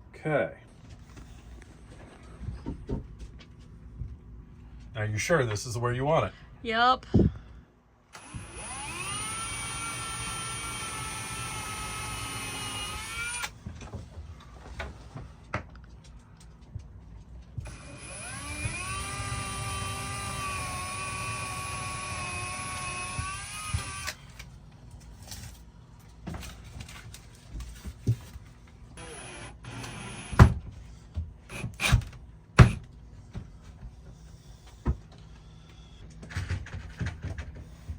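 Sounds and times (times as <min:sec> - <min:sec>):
power drill whining: 0:08.1 - 0:13.6, 0:17.7 - 0:24.4, 0:29.0 - 0:30.5.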